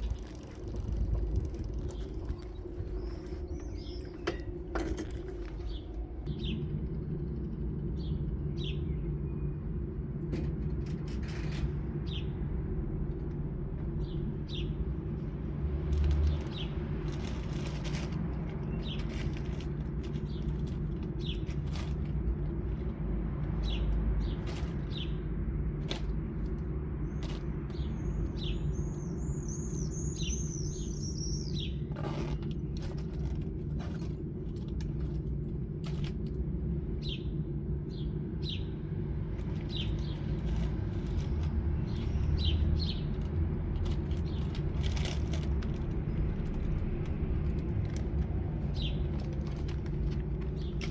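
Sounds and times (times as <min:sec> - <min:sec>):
birds chirping: 0:00.0 - 0:09.8, 0:25.9 - 0:35.4, 0:36.8 - 0:43.2, 0:46.0 - 0:50.9.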